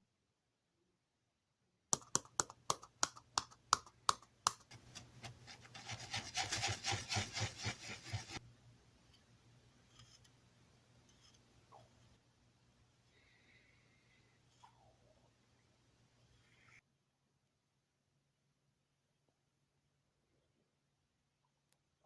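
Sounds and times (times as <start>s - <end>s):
hand rubbing on wood: 4.7s - 8.4s.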